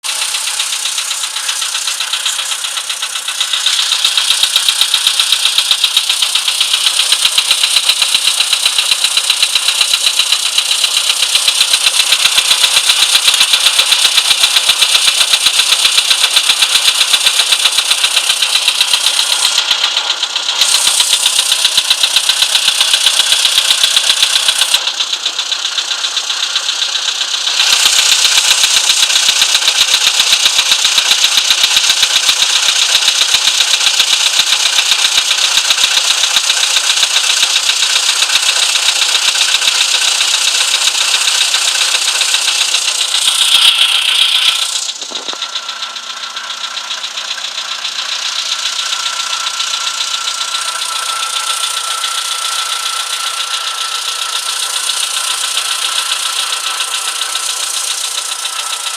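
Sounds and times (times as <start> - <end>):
car engine running: 0.0 - 58.9
rapid even engine knocking: 0.0 - 58.9.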